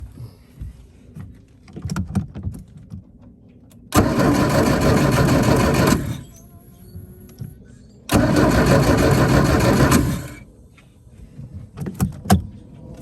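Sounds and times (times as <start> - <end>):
engine running loudly: 3.9 - 6.3, 8.1 - 10.4.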